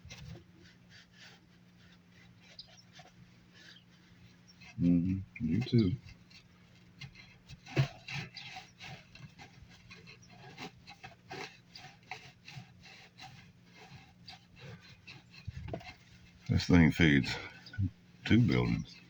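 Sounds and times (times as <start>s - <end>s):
hand saw cutting plastic pipe: 4.6s - 19.0s.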